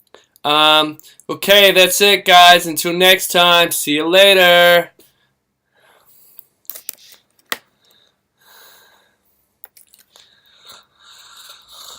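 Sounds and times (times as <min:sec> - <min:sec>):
soft breaths: 0:05.0 - 0:06.6, 0:07.7 - 0:11.9.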